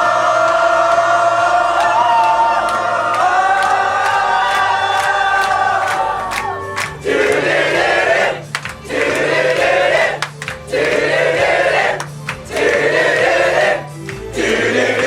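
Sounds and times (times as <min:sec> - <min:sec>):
backing track with bass notes: 0:00.0 - 0:15.0
choir singing: 0:00.0 - 0:15.0.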